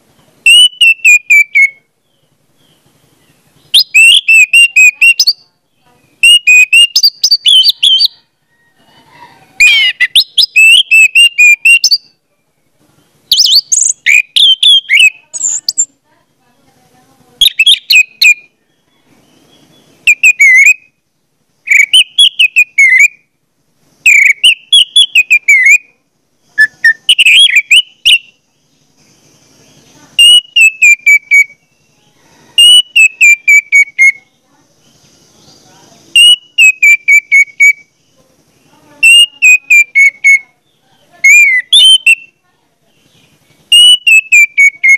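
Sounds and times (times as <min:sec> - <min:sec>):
bird-like whistling: 0:00.4 - 0:01.9, 0:03.6 - 0:05.4, 0:06.2 - 0:08.2, 0:09.6 - 0:12.1, 0:13.3 - 0:15.9, 0:17.4 - 0:18.6, 0:19.2 - 0:20.9, 0:21.7 - 0:23.2, 0:24.0 - 0:25.9, 0:26.5 - 0:28.4, 0:30.2 - 0:34.3, 0:36.1 - 0:37.9, 0:39.0 - 0:40.5, 0:41.2 - 0:42.4, 0:43.7 - 0:44.9.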